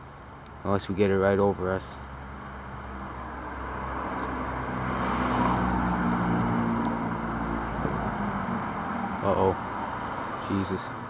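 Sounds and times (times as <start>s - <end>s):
car driving past: 2.6s - 10.5s.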